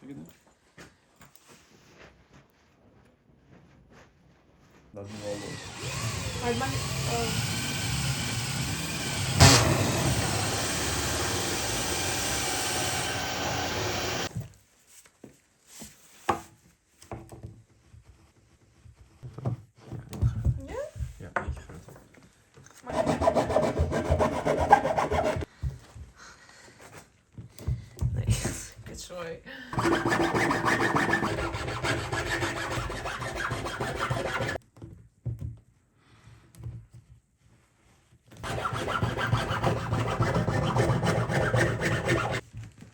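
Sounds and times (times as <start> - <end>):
power tool running: 5.0 - 14.3
wood being sawn: 5.0 - 14.3, 22.8 - 25.5, 29.8 - 34.6, 38.4 - 42.4.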